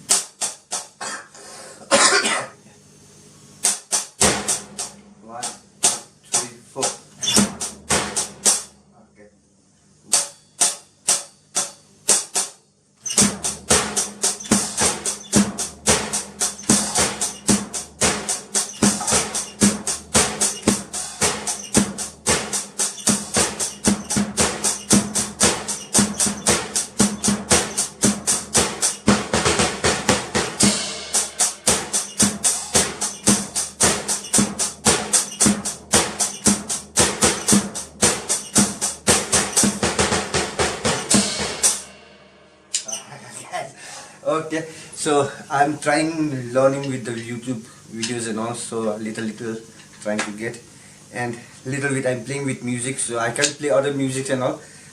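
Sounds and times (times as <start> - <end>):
drum kit played solo: 0.0 - 1.0, 3.6 - 8.8, 10.1 - 42.8.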